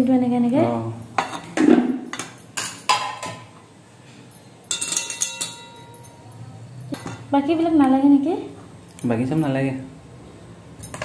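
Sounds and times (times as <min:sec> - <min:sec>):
metal utensils and dishes clinking: 0:01.1 - 0:03.5, 0:04.2 - 0:07.3, 0:10.8 - 0:11.0.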